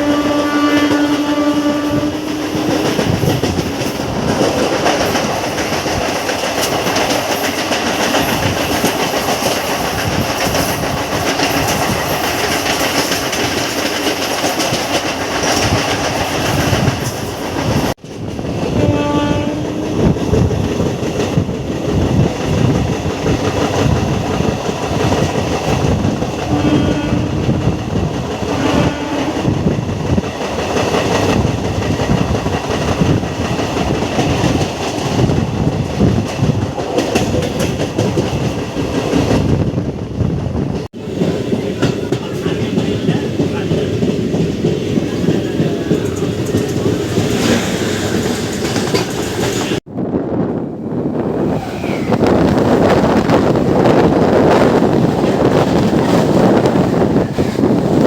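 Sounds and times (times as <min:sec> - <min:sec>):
train horn blasts: 0:00.0 - 0:03.2, 0:18.6 - 0:20.2, 0:26.5 - 0:27.6, 0:28.5 - 0:29.5
train rail and wheel noise: 0:00.0 - 0:58.0.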